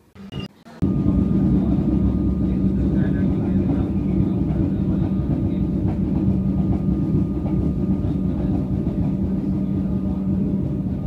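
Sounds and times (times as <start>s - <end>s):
constant hum: 0.8s - 11.0s
metro train rumbling: 0.8s - 11.0s.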